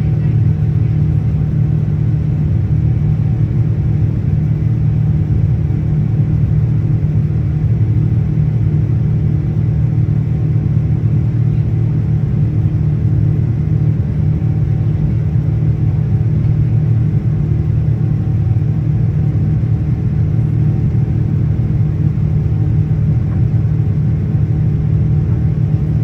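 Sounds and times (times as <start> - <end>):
airliner cabin engine drone: 0.0 - 26.0.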